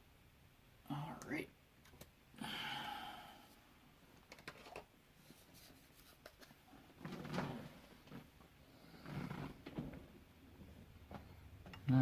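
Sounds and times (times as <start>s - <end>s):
rustling and clattering: 4.2s - 11.9s.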